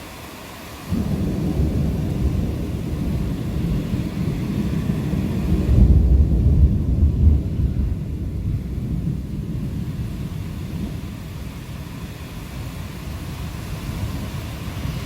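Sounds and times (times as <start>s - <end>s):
thunderclap rumbling: 0.9s - 15.0s.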